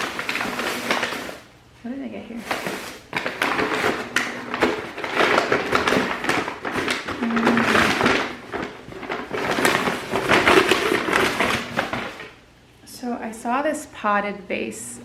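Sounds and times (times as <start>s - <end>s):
packaging rustling and crinkling: 0.0s - 1.5s, 2.2s - 12.4s.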